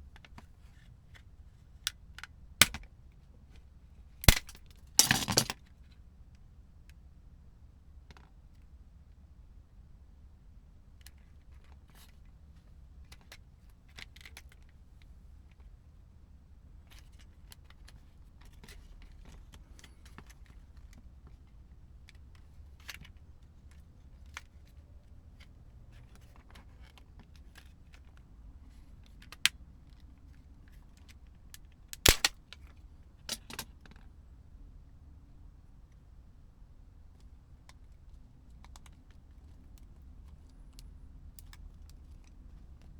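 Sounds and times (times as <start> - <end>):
sharp plastic snaps: 2.6 - 2.9, 4.2 - 5.6, 31.9 - 32.6.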